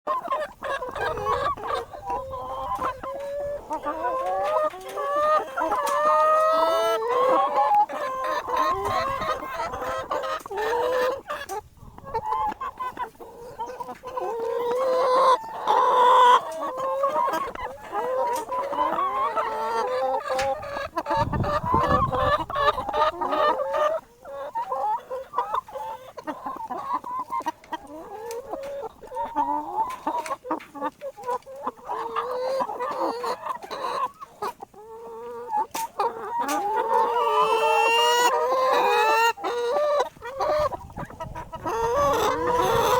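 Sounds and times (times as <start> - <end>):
chickens clucking: 0.1 - 42.9.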